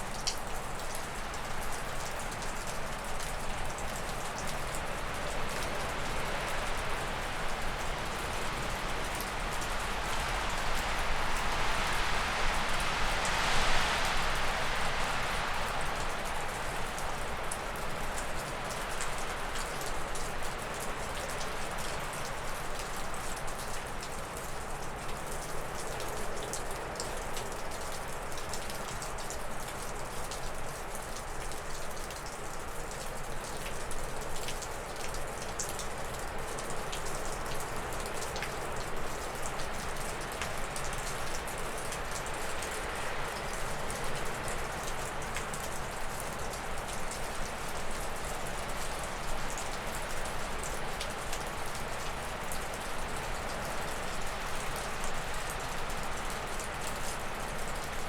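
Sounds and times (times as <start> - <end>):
snowmelt dripping off a roof: 0.0 - 58.0
wind rushing through trees: 5.1 - 18.8.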